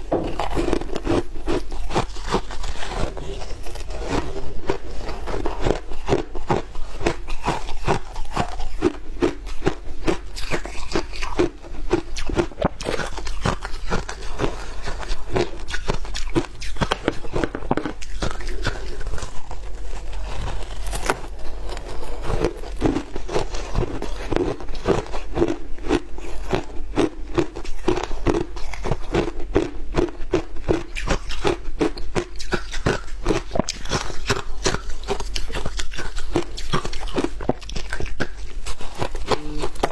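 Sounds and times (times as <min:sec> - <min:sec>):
shaved ice crunching: 0:18.7 - 0:24.3.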